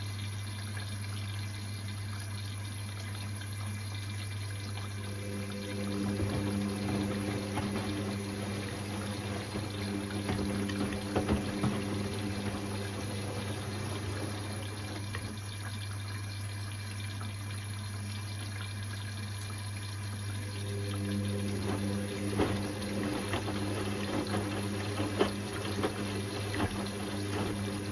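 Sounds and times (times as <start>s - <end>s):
rushing water in washing machine: 0.0s - 27.9s
motor hum: 4.6s - 15.7s, 20.2s - 27.9s.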